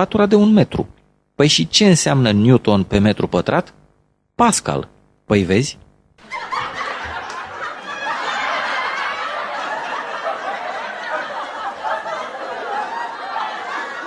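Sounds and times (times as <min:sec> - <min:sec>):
canned audience laughter: 0:06.2 - 0:14.0.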